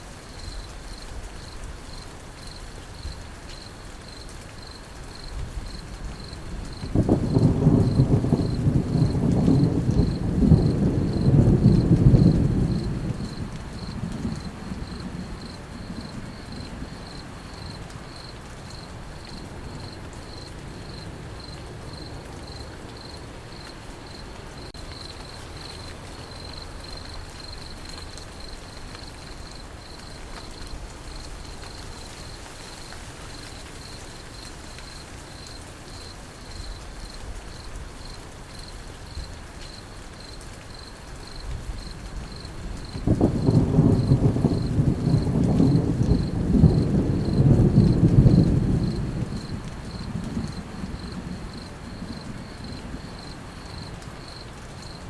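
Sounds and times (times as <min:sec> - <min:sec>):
rain hiss: 0:00.0 - 0:55.0
crickets chirping: 0:00.3 - 0:55.0
thunder rumble: 0:05.4 - 0:22.1, 0:41.5 - 0:55.0.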